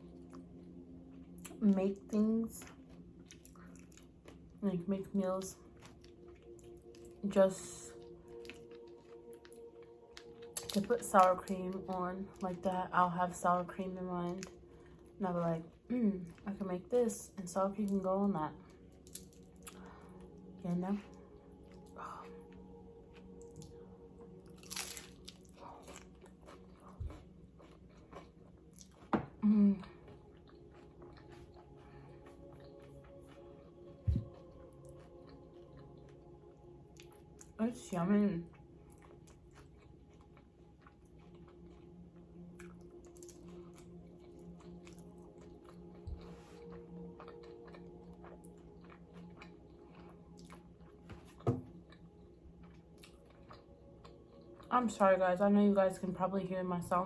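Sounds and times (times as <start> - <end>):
faint steady hum: 0.0 - 57.0
crunchy chip bite and chewing: 8.3 - 10.9, 24.4 - 32.9, 38.5 - 54.7.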